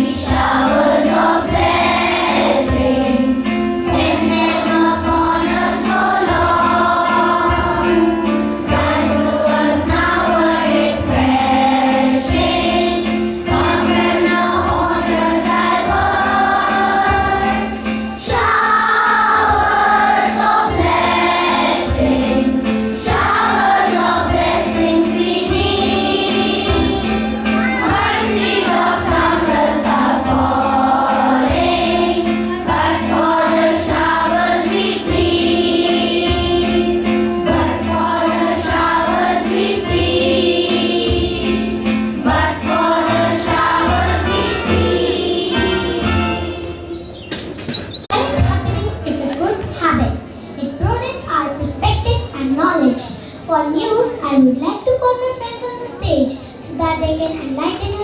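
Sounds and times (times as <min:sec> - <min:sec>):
regular beat: 0:00.0 - 0:46.2
group singing in unison: 0:00.0 - 0:47.1.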